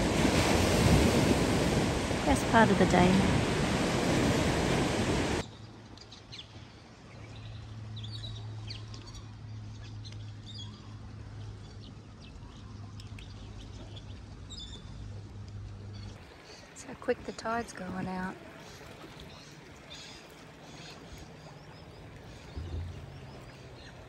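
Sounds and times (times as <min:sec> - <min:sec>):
small birds chirping: 0:15.8 - 0:24.0.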